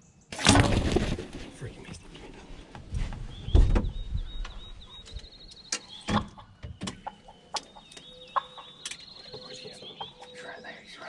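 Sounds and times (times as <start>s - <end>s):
turkey clucking and purring: 5.8s - 10.4s.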